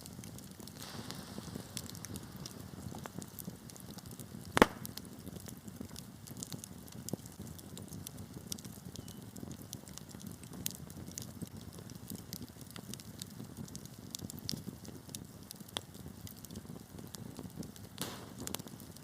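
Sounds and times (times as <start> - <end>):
fire flames rumbling: 0.0 - 19.0
wood fire crackling: 0.0 - 19.0
loud pop from fire: 0.3 - 5.6, 17.9 - 19.0.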